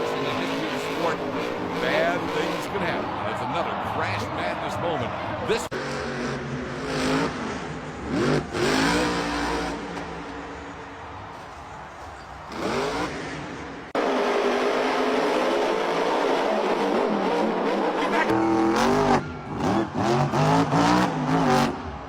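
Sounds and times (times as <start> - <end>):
truck engine revving: 0.0 - 4.3, 5.1 - 11.2, 12.4 - 22.0.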